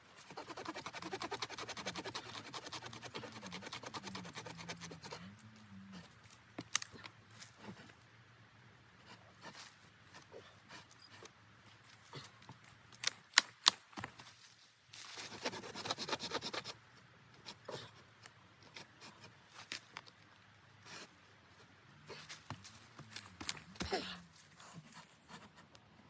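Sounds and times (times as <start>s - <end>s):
rapid chopping strokes: 0.2s - 5.1s.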